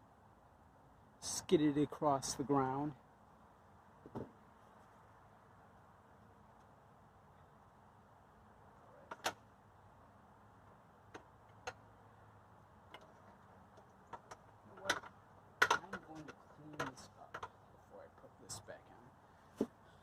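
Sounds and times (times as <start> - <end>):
clicks and knocks of parts and tools: 9.0 - 9.4, 11.1 - 11.8, 12.8 - 17.6.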